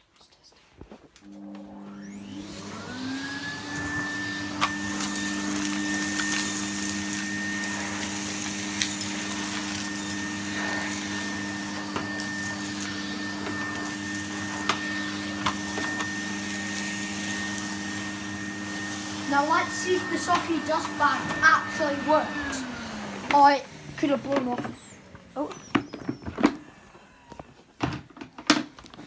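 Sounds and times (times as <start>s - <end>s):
vacuum cleaner running: 1.2s - 26.8s.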